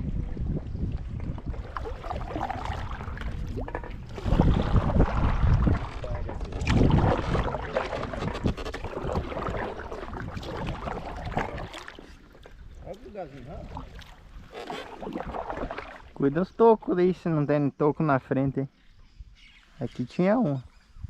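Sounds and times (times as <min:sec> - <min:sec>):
wind rumbling on microphone: 0:00.0 - 0:16.7
paddle splashing in water: 0:00.6 - 0:16.3.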